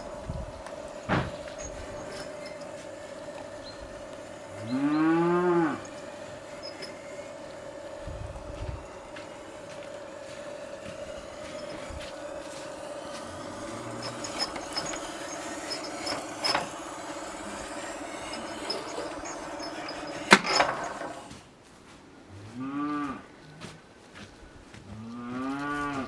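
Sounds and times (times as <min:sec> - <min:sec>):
pipe bender motor hum: 0:00.0 - 0:21.4
cow mooing: 0:04.6 - 0:05.9.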